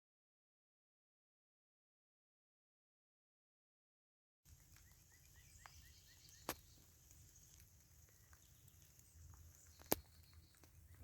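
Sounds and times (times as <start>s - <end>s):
bird chirping: 4.5s - 11.0s.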